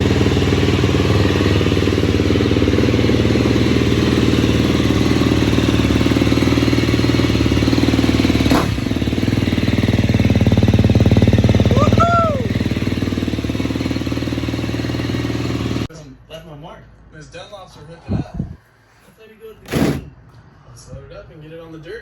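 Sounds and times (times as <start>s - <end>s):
dirt bike engine running: 0.0s - 15.9s.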